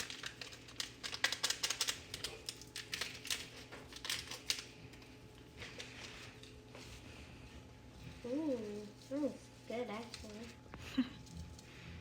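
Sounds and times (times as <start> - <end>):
seasoning packets and utensils clicking: 0.0 - 5.1.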